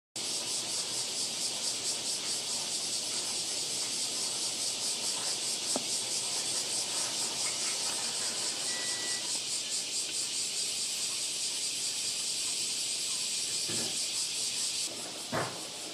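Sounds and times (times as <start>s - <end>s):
cicadas shrilling: 0.2s - 15.9s.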